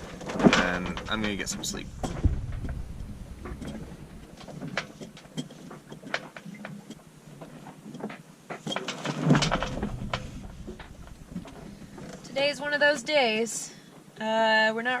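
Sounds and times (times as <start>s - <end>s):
low thump: 0.0s - 4.7s, 9.3s - 12.4s
small clicks and knocks: 0.0s - 12.4s.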